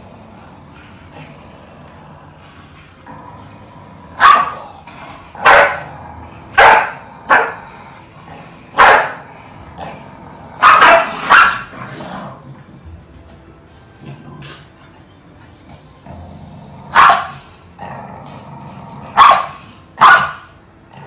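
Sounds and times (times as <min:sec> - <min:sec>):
dog barking: 0:04.2 - 0:04.6, 0:05.4 - 0:05.8, 0:06.6 - 0:07.6, 0:08.8 - 0:09.2, 0:10.6 - 0:11.7, 0:16.9 - 0:17.4, 0:19.2 - 0:20.5.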